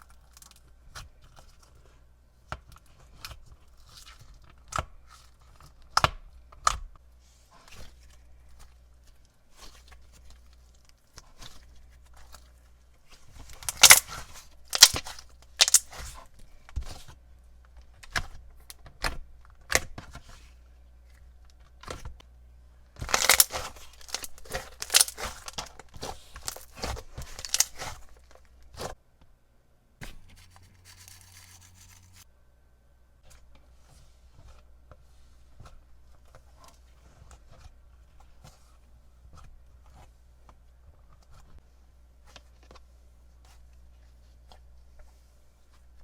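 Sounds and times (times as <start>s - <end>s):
slime squeezed with sticky pops: 13.6s - 14.2s, 14.8s - 16.1s, 23.0s - 28.0s.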